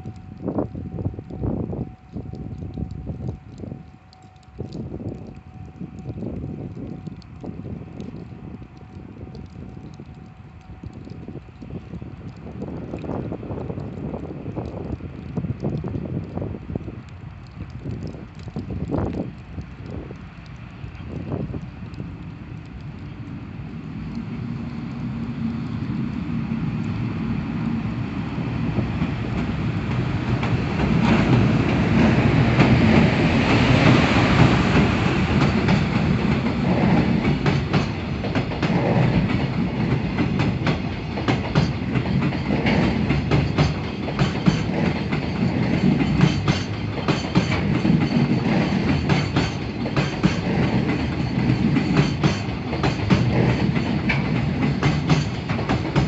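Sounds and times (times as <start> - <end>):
freight train rumble: 0.0 - 56.0
wagon wheels clacking over rail joints: 29.3 - 56.0.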